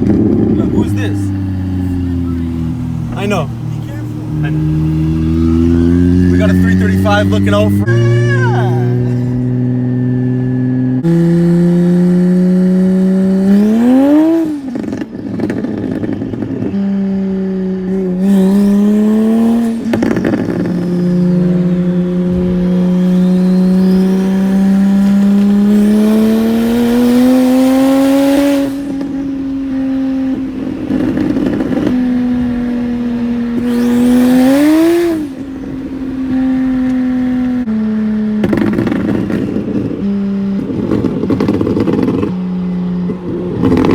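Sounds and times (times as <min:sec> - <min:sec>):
turbo car engine revving: 0:00.0 - 0:43.9
rush of noise on throttle lift: 0:18.0 - 0:37.7.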